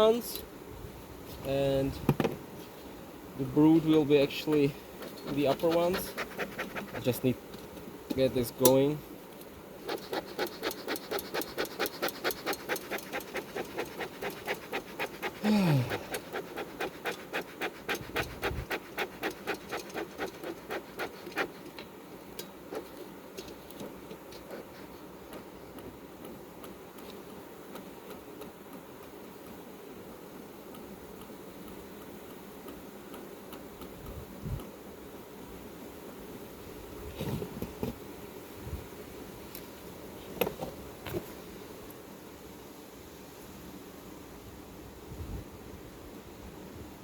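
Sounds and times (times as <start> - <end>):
bellows puffing: 5.0 - 7.2, 9.9 - 21.7.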